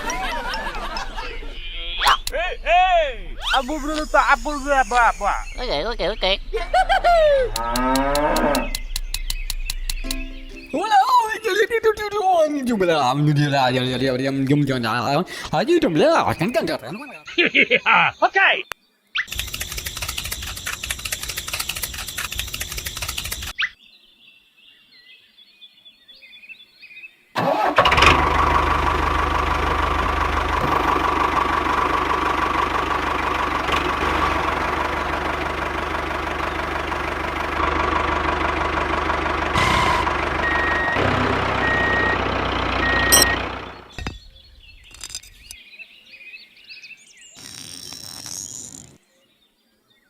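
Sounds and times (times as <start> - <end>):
small diesel engine running: 0.0 - 1.6, 19.3 - 23.5, 27.4 - 44.2.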